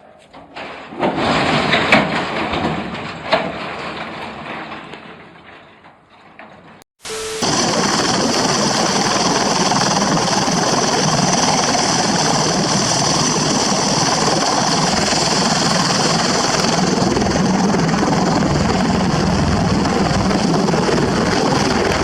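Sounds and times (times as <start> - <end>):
deep rumble: 7.4 - 22.0.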